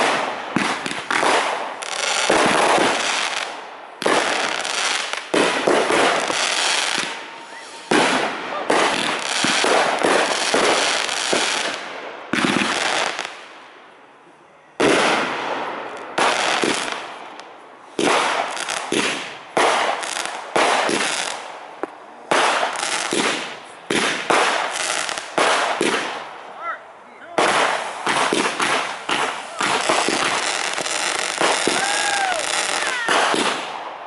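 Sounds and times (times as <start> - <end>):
fireworks bursting with bangs: 0.0 - 13.8, 14.8 - 26.5, 27.3 - 34.0.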